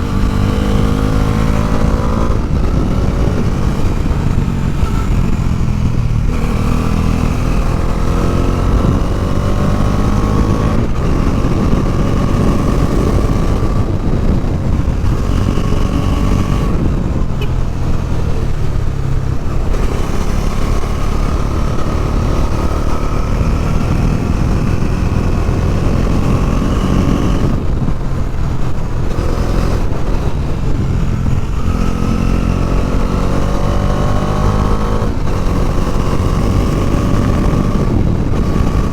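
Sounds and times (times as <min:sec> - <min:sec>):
motorcycle engine accelerating: 0:00.0 - 0:38.9
wind and road noise: 0:00.0 - 0:38.9.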